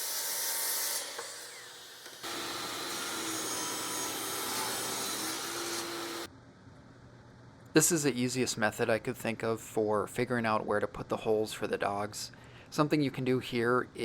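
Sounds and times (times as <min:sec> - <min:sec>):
woodworking tool cutting wood: 0:00.0 - 0:06.3.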